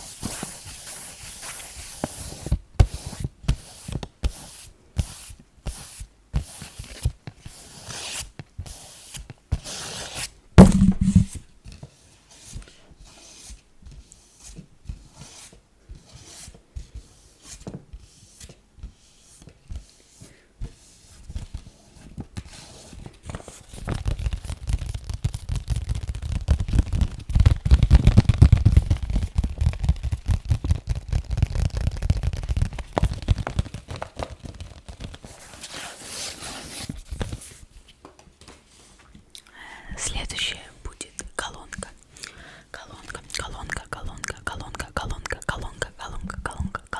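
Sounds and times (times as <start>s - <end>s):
deep thuds: 10.6s - 11.4s
heavy thump: 10.6s - 11.4s
tapping on objects: 10.6s - 11.4s.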